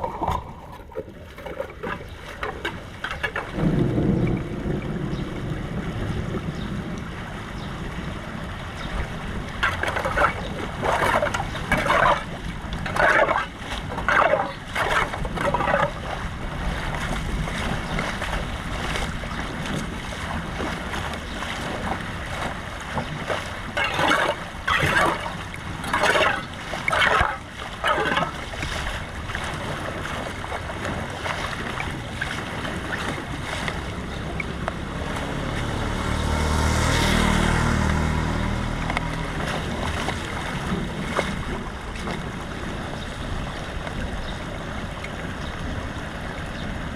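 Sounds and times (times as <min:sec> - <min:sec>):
water rushing: 0:00.0 - 0:46.9
splashing strokes: 0:09.6 - 0:42.2.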